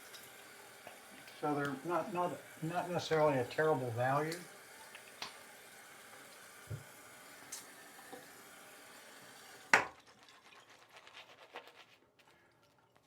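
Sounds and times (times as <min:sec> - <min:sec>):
water running from a tap: 0:00.0 - 0:11.0.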